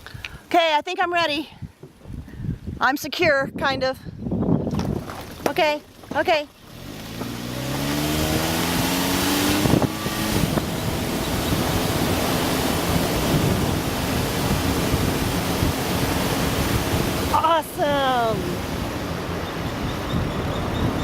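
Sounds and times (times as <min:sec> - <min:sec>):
wind noise on microphone: 0:01.2 - 0:21.0
car engine revving: 0:06.0 - 0:21.0.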